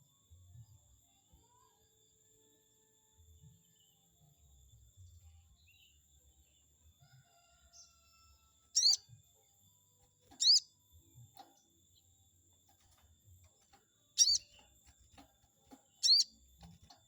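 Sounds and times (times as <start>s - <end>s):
bird chirping calls: 8.7s - 9.2s, 10.3s - 10.8s, 14.1s - 14.7s, 15.9s - 16.5s.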